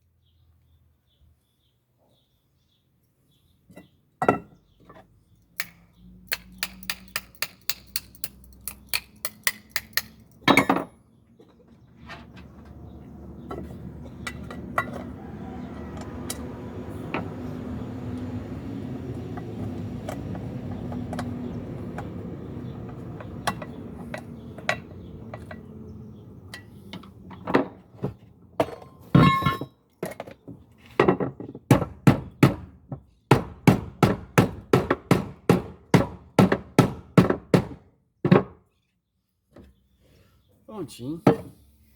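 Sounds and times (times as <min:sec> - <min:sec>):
metal clinks: 0:05.6 - 0:10.9
ringing metallic clang: 0:28.6 - 0:29.7.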